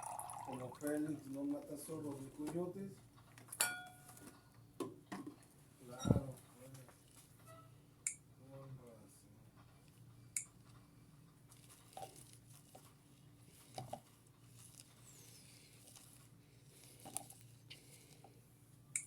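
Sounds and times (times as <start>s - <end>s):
small rustles: 9.6s - 18.5s.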